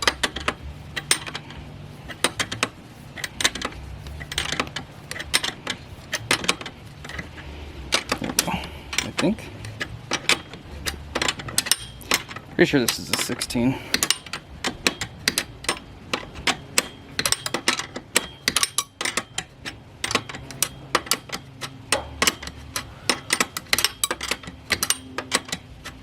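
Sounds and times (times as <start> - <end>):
metal parts clicking and clinking: 0.0 - 26.0.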